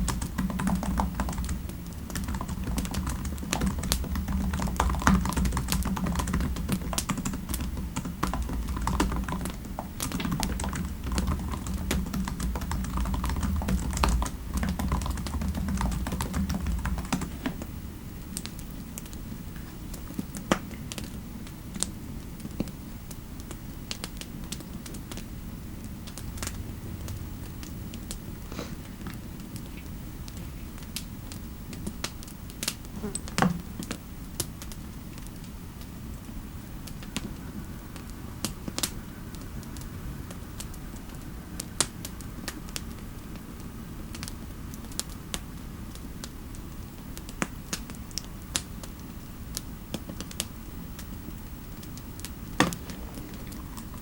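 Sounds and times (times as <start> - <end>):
typing on computer keyboard: 0.0 - 17.6
soft steady hiss: 0.0 - 54.0.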